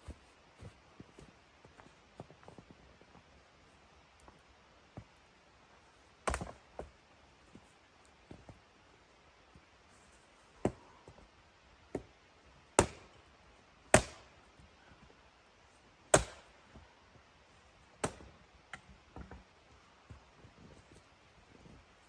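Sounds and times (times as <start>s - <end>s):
wood being chopped: 6.3s - 6.9s, 12.8s - 13.2s, 13.9s - 14.3s, 16.1s - 16.6s, 18.0s - 18.3s.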